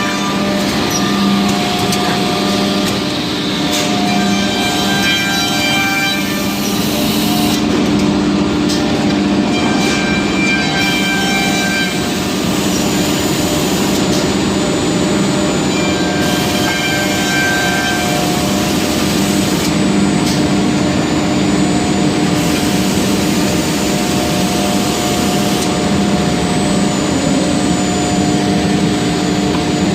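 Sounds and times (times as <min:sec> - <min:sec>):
machine motor hum: 0:00.0 - 0:04.3.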